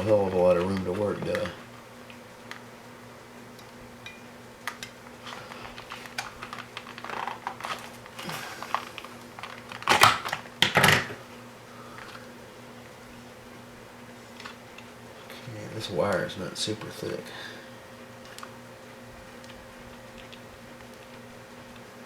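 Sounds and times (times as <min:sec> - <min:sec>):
faint steady hum: 0:00.0 - 0:22.0
clicks and rustles of small parts: 0:04.6 - 0:11.2.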